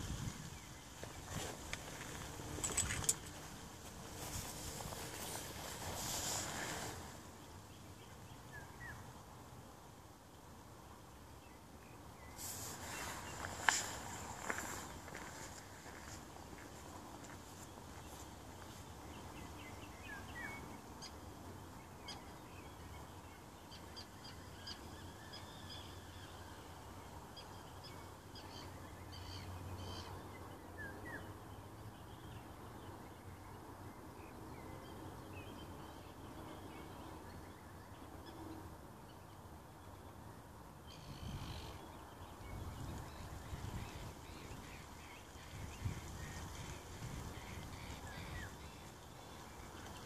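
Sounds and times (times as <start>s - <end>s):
birds chirping and calling: 40.9s - 50.0s.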